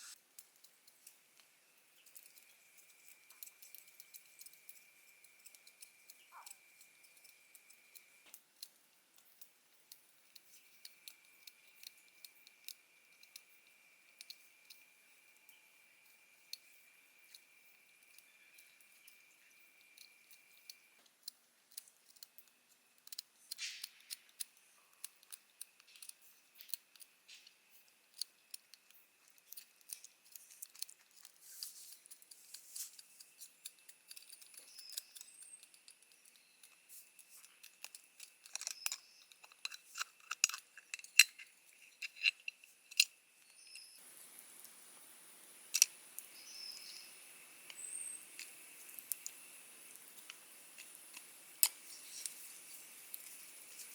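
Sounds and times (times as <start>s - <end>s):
clicks and snips of hand work: 16.5s - 44.0s, 45.7s - 53.9s
faint steady high tone: 43.2s - 44.1s
soft even hiss: 43.6s - 53.9s.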